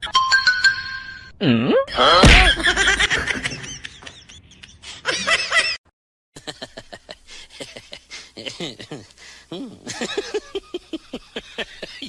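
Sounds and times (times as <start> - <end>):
people laughing: 2.0 - 5.8, 9.8 - 12.0.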